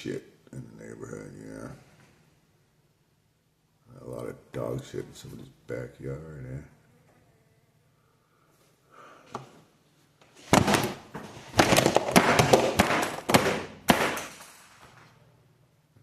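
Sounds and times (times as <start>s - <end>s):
sharp slaps and thuds: 10.4s - 14.6s.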